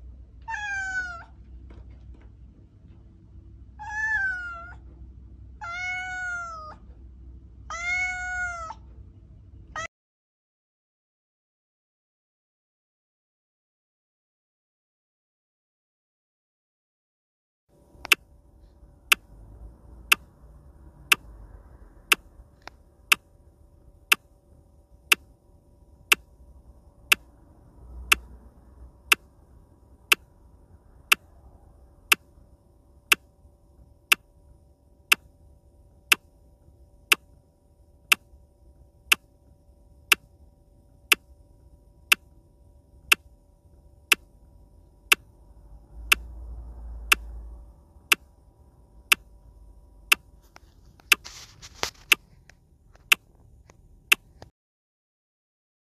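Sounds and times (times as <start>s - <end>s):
faint steady hum: 0.0s - 9.9s, 17.7s - 54.5s
sharp ticks: 18.0s - 18.2s, 19.1s - 19.3s, 20.0s - 20.3s, 21.0s - 21.4s, 22.1s - 23.3s, 24.1s - 24.3s, 26.1s - 26.3s, 27.0s - 27.3s, 28.0s - 28.4s, 29.1s - 29.3s, 30.1s - 30.3s, 33.1s - 33.3s, 34.1s - 34.3s, 37.1s - 37.3s, 38.1s - 38.3s, 39.1s - 39.3s, 41.1s - 41.3s, 43.0s - 43.3s, 44.1s - 44.3s, 45.0s - 45.4s, 46.0s - 46.4s, 47.0s - 47.4s, 48.1s - 48.3s, 49.0s - 49.3s, 50.0s - 51.2s.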